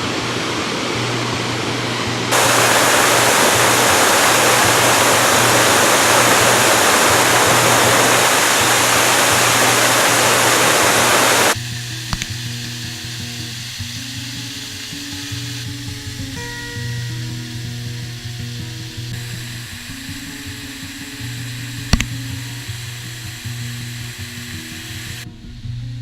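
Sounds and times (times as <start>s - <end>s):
waterfall roaring: 0.0s - 11.6s.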